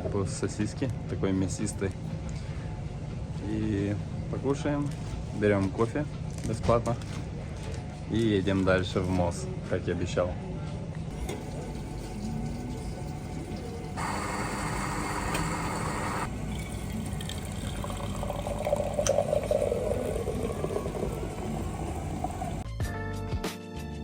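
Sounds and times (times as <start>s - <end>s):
coffee machine hiss: 11.1s - 22.6s
liquid pouring into cup: 11.1s - 22.6s.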